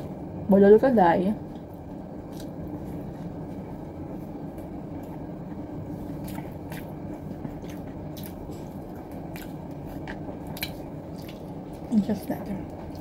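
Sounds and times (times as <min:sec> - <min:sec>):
low hum of room noise: 0:00.0 - 0:13.0
person chewing: 0:01.5 - 0:03.3, 0:05.9 - 0:11.9.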